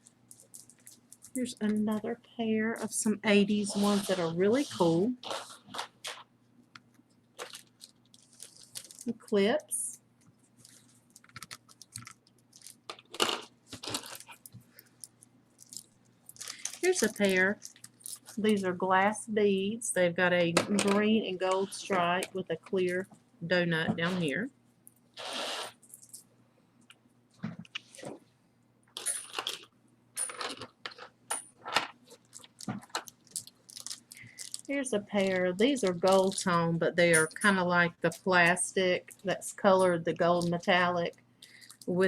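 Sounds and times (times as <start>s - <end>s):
jewelry clicking and clattering: 0.0s - 2.0s, 10.6s - 18.6s, 29.0s - 34.7s, 35.8s - 37.6s
jewelry clinking: 29.0s - 34.8s, 35.6s - 37.6s.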